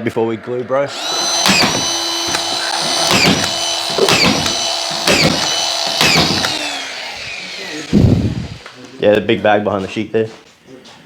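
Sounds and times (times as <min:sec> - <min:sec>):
screw gun whining: 0:00.9 - 0:08.9
screw gun clicks: 0:01.5 - 0:06.6.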